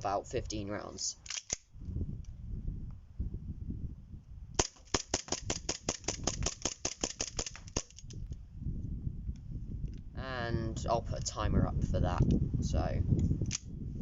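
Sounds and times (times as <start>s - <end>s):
airsoft pistol firing rapidly: 4.6s - 8.0s.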